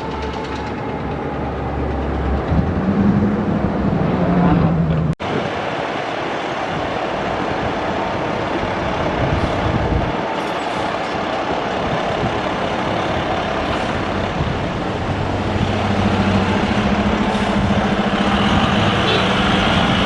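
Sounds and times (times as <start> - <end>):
road noise rumble: 0.0 - 20.0
fire truck diesel engine: 4.9 - 20.0.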